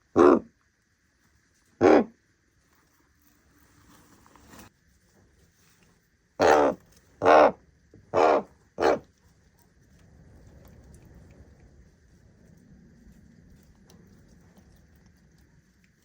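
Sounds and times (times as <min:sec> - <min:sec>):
raven calling: 0:00.0 - 0:00.6, 0:01.8 - 0:02.2, 0:06.4 - 0:09.1.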